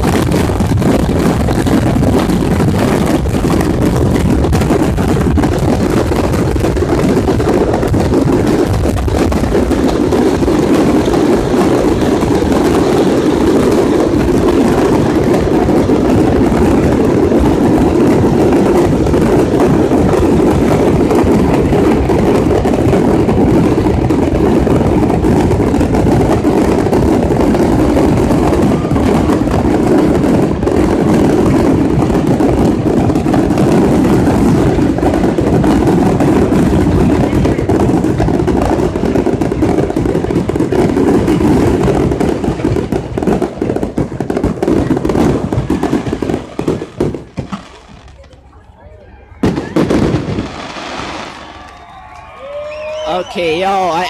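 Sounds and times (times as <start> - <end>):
wind buffeting the microphone: 0.0 - 48.0.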